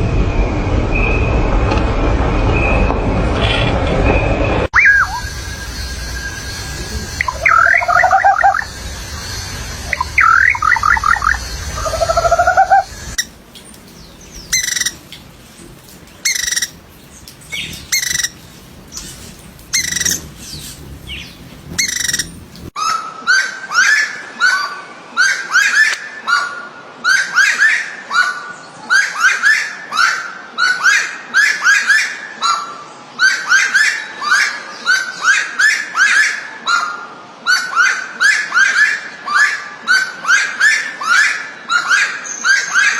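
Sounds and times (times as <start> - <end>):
low rumble: 0.0 - 16.1, 16.7 - 22.8
songbirds singing: 4.8 - 22.7.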